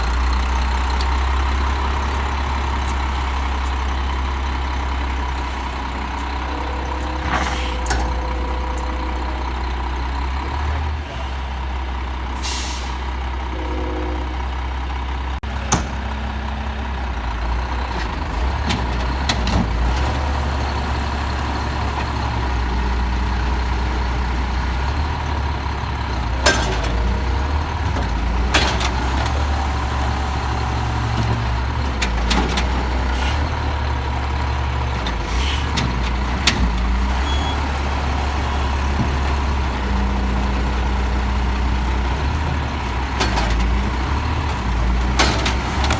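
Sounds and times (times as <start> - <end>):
garbage truck diesel engine: 0.0 - 45.9
metal clanks: 4.8 - 10.7
high whine: 6.0 - 10.5, 13.5 - 15.4.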